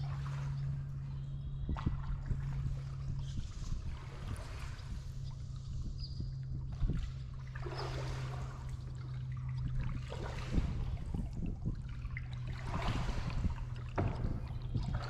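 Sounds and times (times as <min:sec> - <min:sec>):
paddle splashing water: 0:00.0 - 0:05.8, 0:06.6 - 0:15.0
steady low hum: 0:00.0 - 0:15.0.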